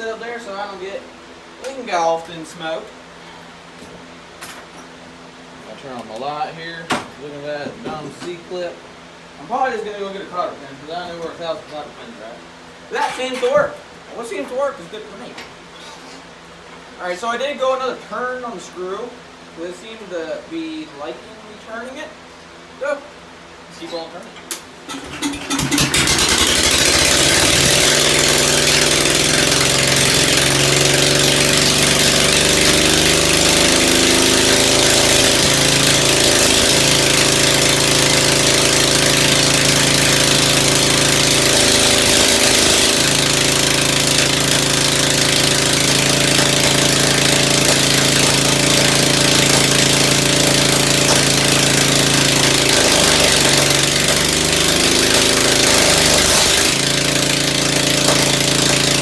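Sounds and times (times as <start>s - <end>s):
car engine running: 24.9s - 59.0s.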